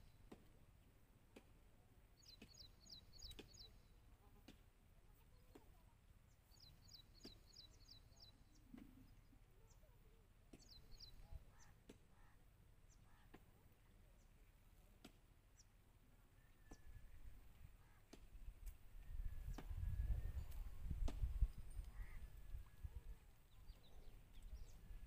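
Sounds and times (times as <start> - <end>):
faint bird chirps: 2.1 - 4.4, 5.1 - 14.7, 15.5 - 18.2, 21.7 - 25.0.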